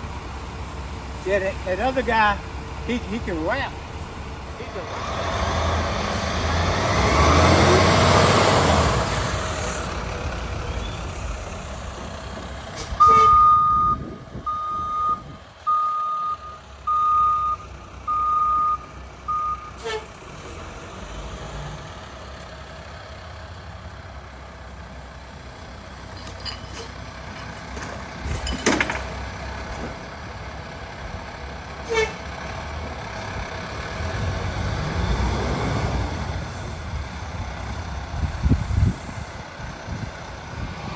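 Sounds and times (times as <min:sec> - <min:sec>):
garbage truck engine: 0:00.0 - 0:40.9
reversing alarm beeps: 0:13.0 - 0:19.7.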